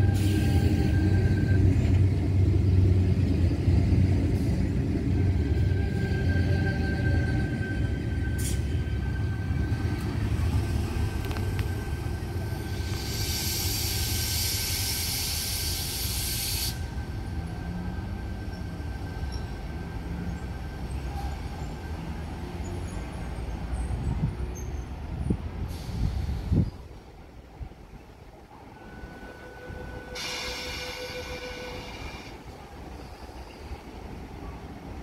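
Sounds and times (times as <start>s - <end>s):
electric train rumbling: 0.0s - 35.0s
air brake hiss: 8.4s - 8.7s, 12.8s - 16.9s, 25.6s - 26.7s, 30.1s - 32.4s.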